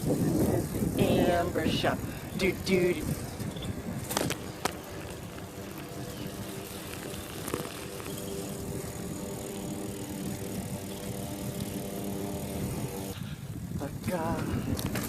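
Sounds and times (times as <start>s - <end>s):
bicycle riding rushing noise: 0.0s - 15.0s.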